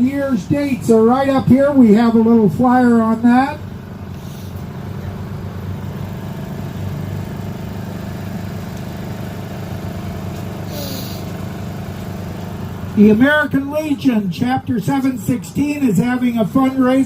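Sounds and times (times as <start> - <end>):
vehicle engine idling: 0.0 - 17.0
short hiss: 10.6 - 11.3.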